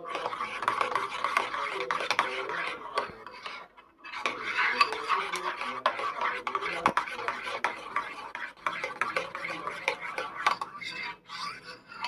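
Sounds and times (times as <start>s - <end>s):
cutlery and dishes clinking: 4.2s - 10.8s.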